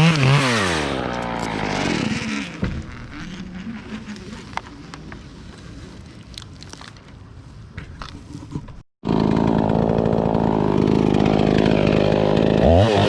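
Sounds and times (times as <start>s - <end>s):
chainsaw idling: 0.0s - 4.1s, 9.0s - 13.0s.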